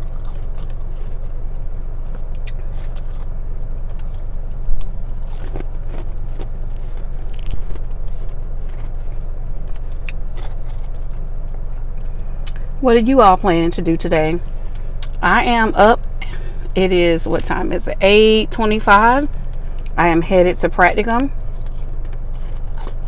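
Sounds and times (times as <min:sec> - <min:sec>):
car cabin hum: 0:00.0 - 0:23.0
crunching frost being bitten: 0:02.0 - 0:11.2.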